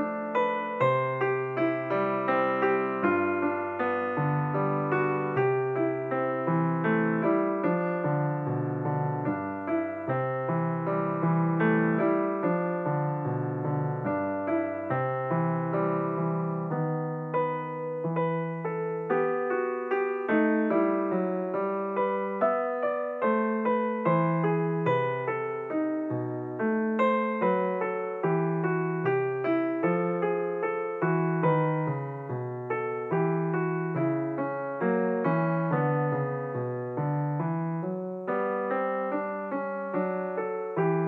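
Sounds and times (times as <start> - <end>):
piano music: 0.0 - 41.0.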